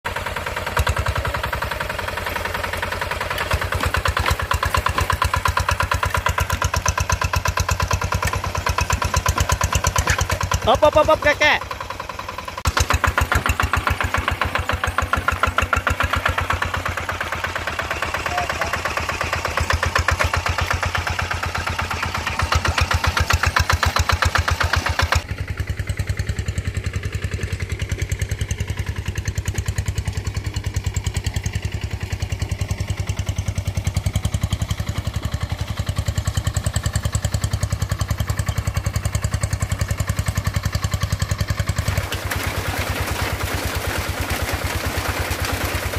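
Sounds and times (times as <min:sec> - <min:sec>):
tractor engine puttering: 0:00.1 - 0:45.9.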